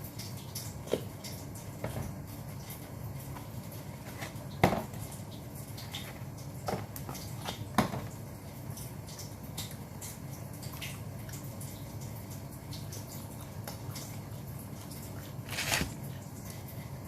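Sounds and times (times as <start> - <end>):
wet chewing: 15.2 - 16.0.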